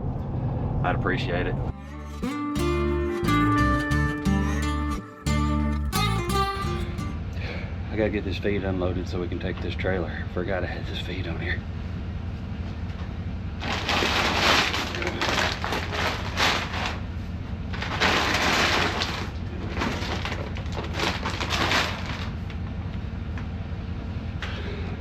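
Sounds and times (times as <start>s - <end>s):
bags knocking down: 13.6s - 17.0s, 17.8s - 22.4s
sacks rustling and scraping: 13.6s - 22.6s.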